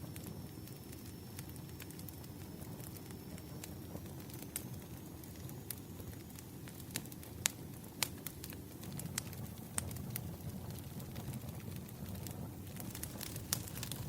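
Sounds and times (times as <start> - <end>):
fire crackles and pops: 0.0 - 14.0
flames rumbling: 0.0 - 14.0.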